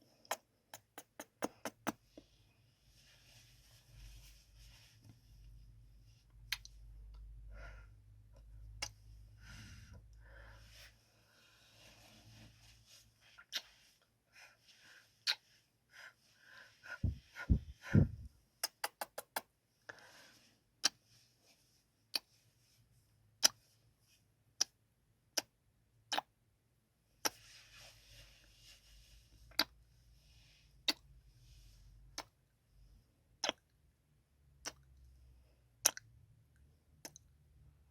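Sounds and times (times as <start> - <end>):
wet lip smacks and kisses: 0.2 - 2.0, 18.6 - 19.5, 33.4 - 33.7, 34.6 - 34.9
low bumps: 16.9 - 18.3.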